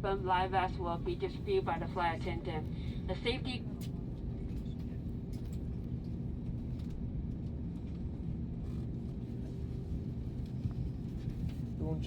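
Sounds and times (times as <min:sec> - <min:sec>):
aircraft cabin rumble: 0:00.0 - 0:12.0.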